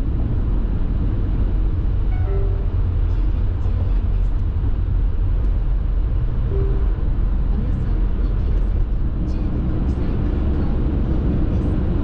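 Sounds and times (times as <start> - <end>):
car road noise inside cabin: 0.0 - 12.0
short faint tone: 2.1 - 3.0, 6.5 - 7.3.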